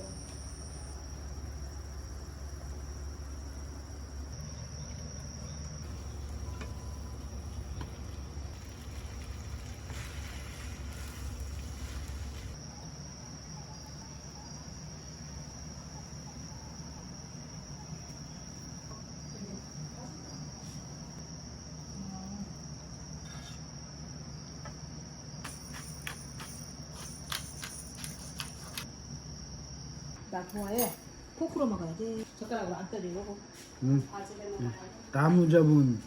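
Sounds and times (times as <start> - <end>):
low steady hum: 0.0 - 25.0
insects chirring: 0.0 - 36.0.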